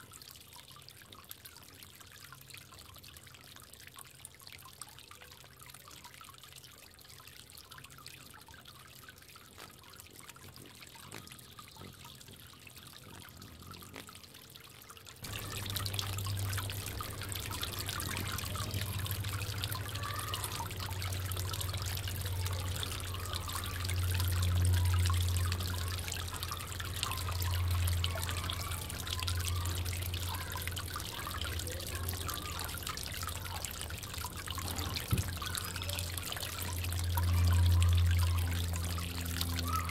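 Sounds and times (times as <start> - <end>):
water trickling: 0.0 - 39.9
low hum: 15.2 - 31.8, 32.8 - 39.9.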